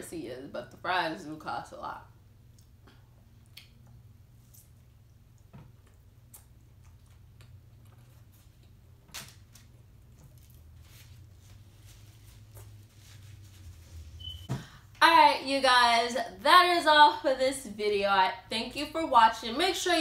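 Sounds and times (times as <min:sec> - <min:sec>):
mouth chewing with soft clicks: 0:02.5 - 0:08.8.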